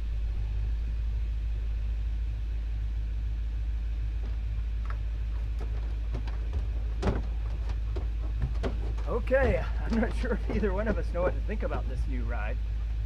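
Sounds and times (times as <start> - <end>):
pickup truck driving slowly: 0.0 - 13.0
light clicks and rattles: 4.2 - 12.2.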